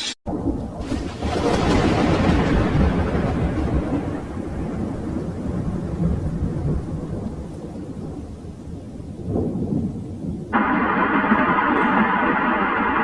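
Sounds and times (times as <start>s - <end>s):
deep rumbling noise: 0.3s - 7.0s, 10.5s - 13.0s.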